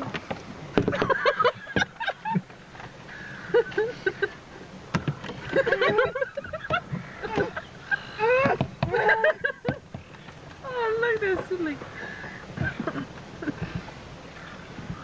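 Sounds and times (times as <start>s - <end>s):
seagulls squawking: 3.0s - 4.4s, 5.3s - 15.0s.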